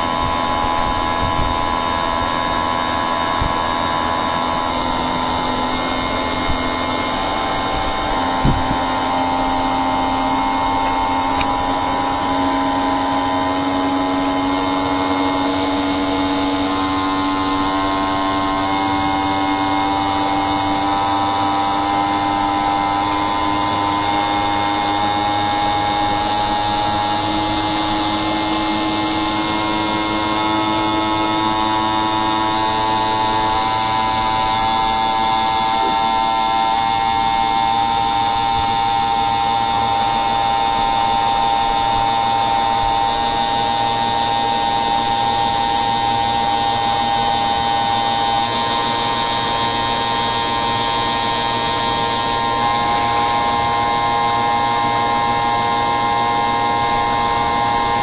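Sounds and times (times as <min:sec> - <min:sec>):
air conditioner electric whine: 0:00.0 - 0:58.0.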